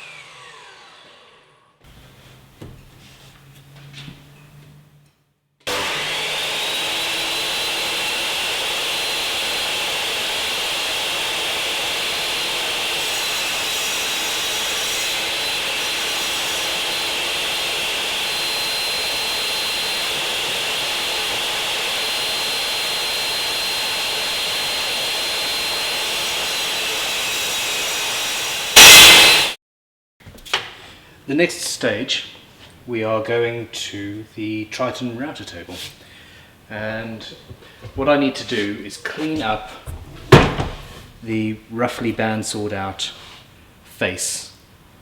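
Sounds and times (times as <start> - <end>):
circular saw whining: 0.0 - 1.8, 5.7 - 29.6.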